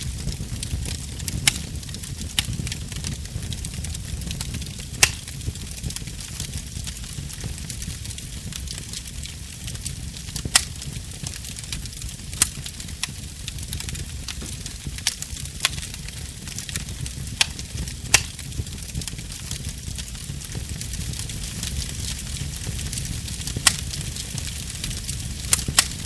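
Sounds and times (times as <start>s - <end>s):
fire crackling in fireplace: 0.0s - 26.0s
sharp pops of fire: 0.0s - 26.0s.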